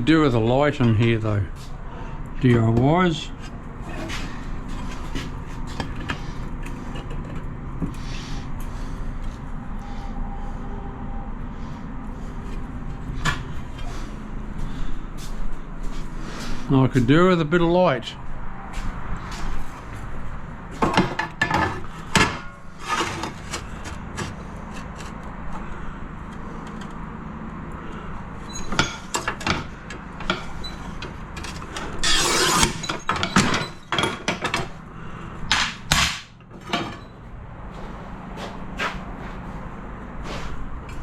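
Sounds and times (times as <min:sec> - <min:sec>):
scrape: 0:32.0 - 0:32.8, 0:40.2 - 0:40.6.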